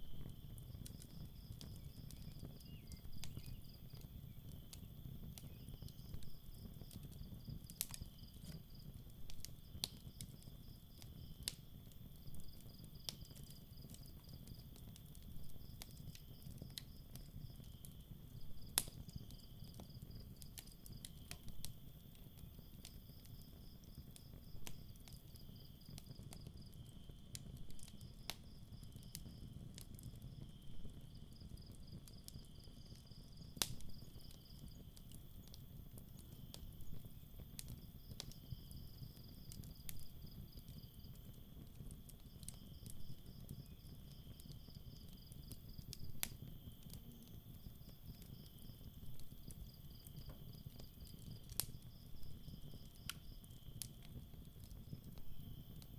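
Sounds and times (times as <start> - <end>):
crickets chirping: 0.0 - 8.9, 30.5 - 41.4, 42.3 - 55.9
campfire crackling: 0.0 - 55.9
sharp fire pops: 0.0 - 55.9.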